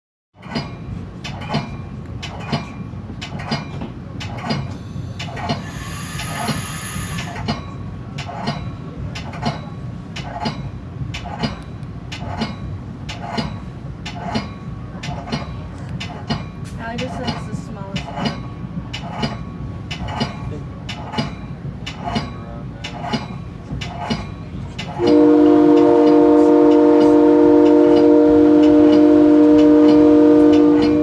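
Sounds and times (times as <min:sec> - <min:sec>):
train rumbling on rails: 0:00.4 - 0:31.0
wheels clicking over rail joints: 0:00.4 - 0:31.0
high ringing squeal: 0:04.8 - 0:07.4.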